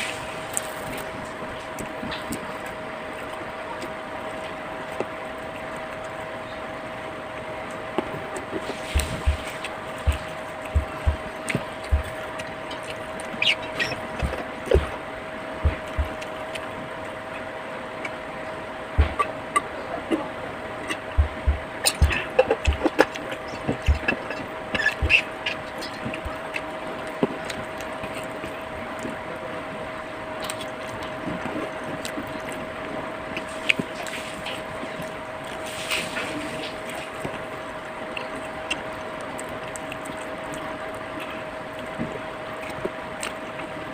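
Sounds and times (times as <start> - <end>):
faint hum: 0.0 - 43.9
chewing: 0.5 - 18.3, 19.0 - 29.8, 30.4 - 43.9
low thumps: 8.9 - 11.3, 15.6 - 16.2, 19.0 - 19.2, 21.2 - 22.9.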